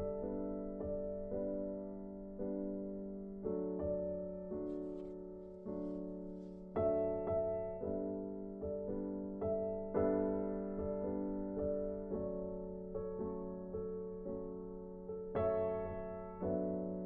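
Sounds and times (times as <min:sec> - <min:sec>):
soft piano chords: 0:00.0 - 0:17.0.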